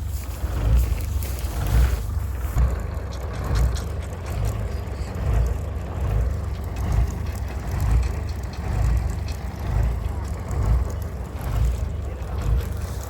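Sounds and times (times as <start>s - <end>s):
diesel engine rumbling: 0.0s - 13.0s
faint clicks and knocks: 2.6s - 13.0s.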